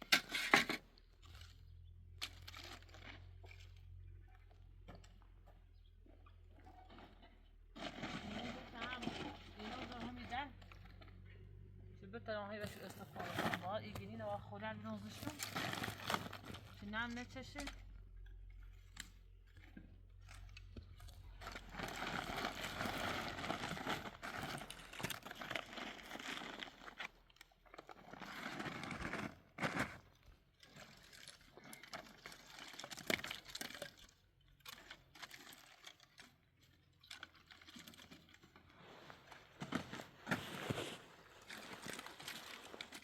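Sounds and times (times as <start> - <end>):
rustling and crinkling handling noise: 12.6 - 43.0.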